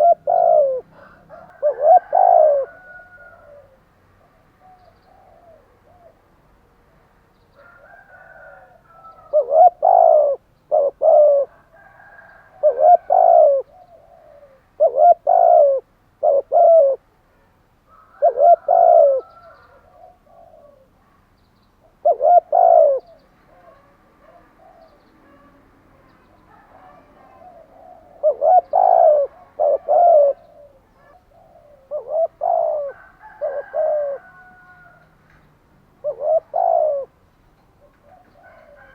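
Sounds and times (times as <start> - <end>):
birds chirping: 0.0 - 6.2, 17.9 - 38.9
dove cooing: 0.0 - 6.3, 7.6 - 17.1, 17.9 - 21.1, 21.8 - 35.1, 35.9 - 37.2, 37.8 - 38.9.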